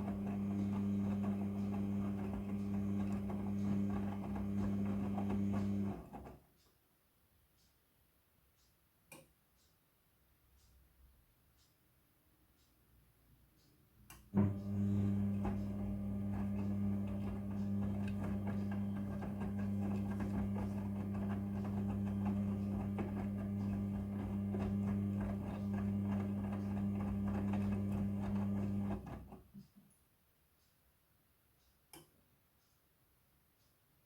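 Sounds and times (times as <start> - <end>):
washing machine drum motor humming: 0.0 - 6.3, 14.3 - 29.5.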